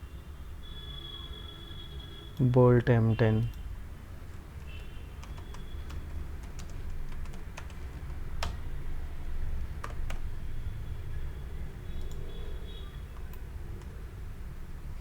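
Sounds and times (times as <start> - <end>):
keyboard and mouse clicks: 4.3 - 8.6, 9.8 - 10.3, 12.0 - 12.3, 13.1 - 14.0.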